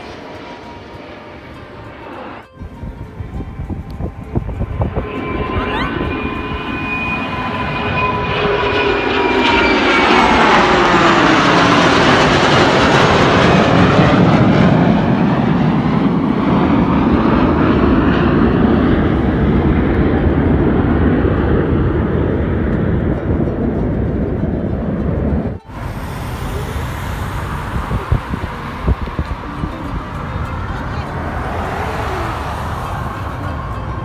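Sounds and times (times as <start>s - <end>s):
aircraft engine roar flying past: 0.0s - 34.0s.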